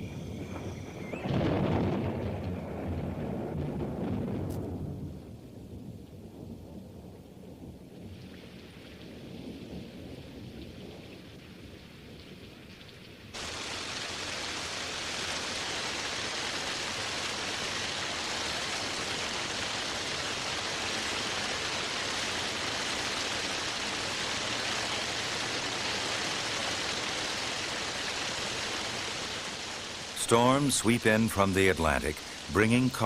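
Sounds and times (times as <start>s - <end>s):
heavy rain falling: 0.0s - 6.6s, 7.6s - 33.0s.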